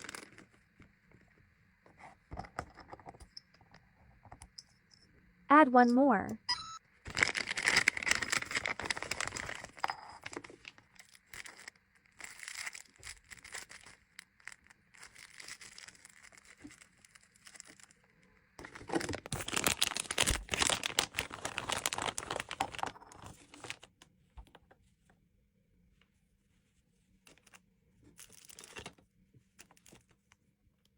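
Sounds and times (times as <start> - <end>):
packaging crinkling and rustling: 0.0 - 1.0, 7.1 - 23.9.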